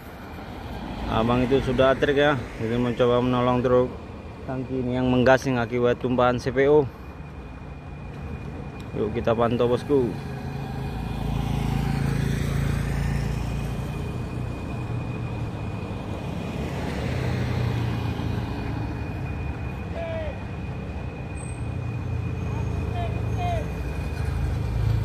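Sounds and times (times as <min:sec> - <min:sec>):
heavy truck engines droning: 0:00.0 - 0:25.0.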